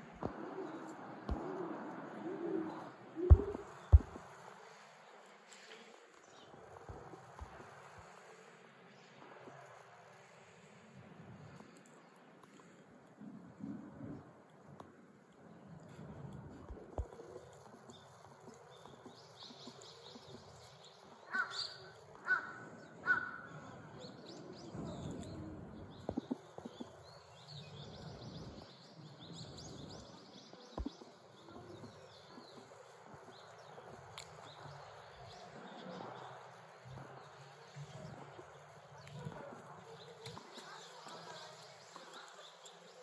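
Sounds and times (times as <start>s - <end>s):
small birds twittering: 0.0s - 10.3s, 10.9s - 43.0s
background hiss: 0.0s - 15.4s
bird calling: 0.2s - 4.4s, 21.0s - 28.2s.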